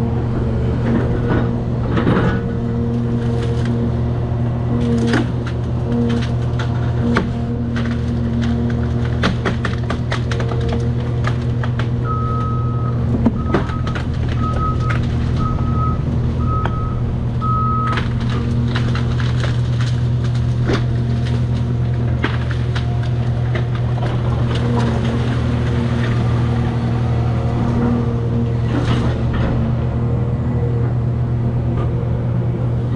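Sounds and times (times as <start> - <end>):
excavator diesel engine running: 0.0 - 32.9
sharp cracks and knocks: 4.8 - 12.0, 13.1 - 16.8, 17.8 - 26.6
backup alarm beeping: 12.1 - 18.0.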